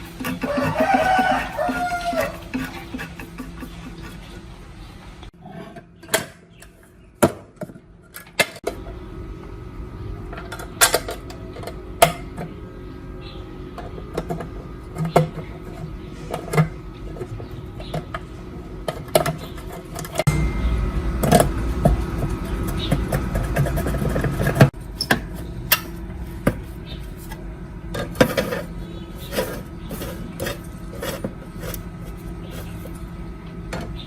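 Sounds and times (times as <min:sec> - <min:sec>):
steady low hum: 0:00.0 - 0:05.4, 0:08.7 - 0:34.0.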